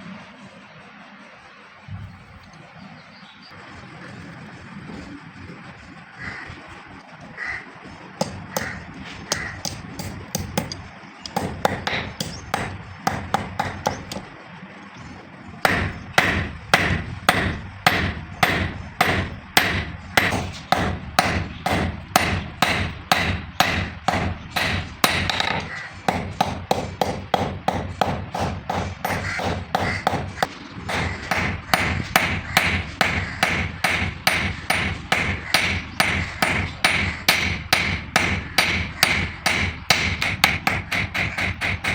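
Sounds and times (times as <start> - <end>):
hammer striking steel on anvil: 8.2 - 14.3, 15.6 - 41.9.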